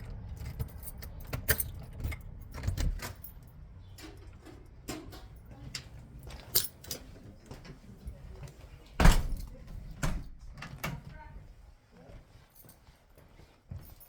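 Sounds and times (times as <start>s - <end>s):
keys jangling: 0.0s - 7.2s, 12.4s - 13.0s, 13.7s - 14.0s.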